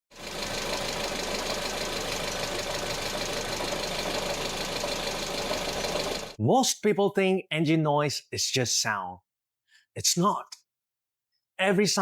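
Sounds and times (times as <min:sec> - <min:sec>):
car engine ticking clatter: 0:00.1 - 0:06.4.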